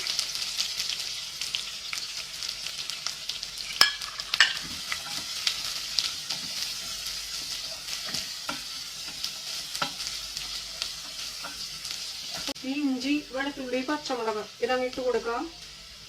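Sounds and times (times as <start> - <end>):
onions sizzling in oil: 0.0 - 16.0
spoon scraping and clicking on pan: 3.7 - 5.3, 6.3 - 11.7.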